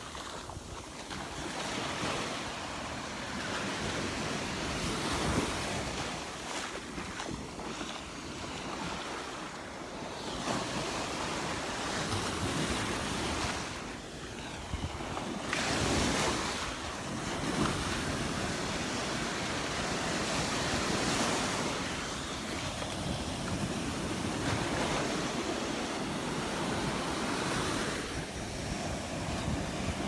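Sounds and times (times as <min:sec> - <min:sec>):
surf breaking on a beach: 0:00.0 - 0:30.0
wind buffeting the microphone: 0:14.5 - 0:30.0.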